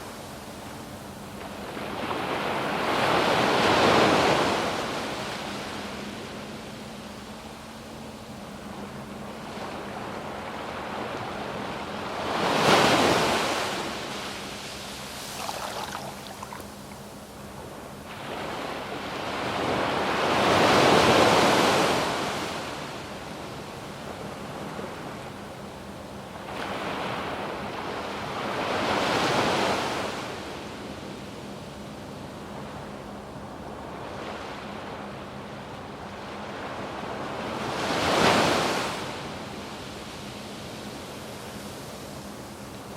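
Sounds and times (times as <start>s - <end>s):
waves breaking on a beach: 0.0s - 42.9s.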